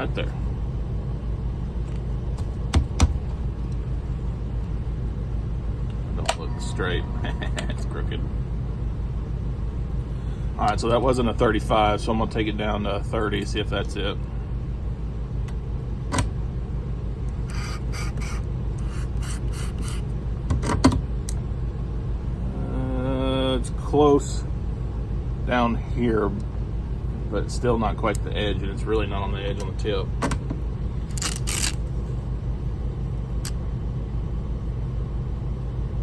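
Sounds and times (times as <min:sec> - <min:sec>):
low motor hum: 0:00.0 - 0:36.0
sharpening machine motor humming: 0:17.3 - 0:20.1.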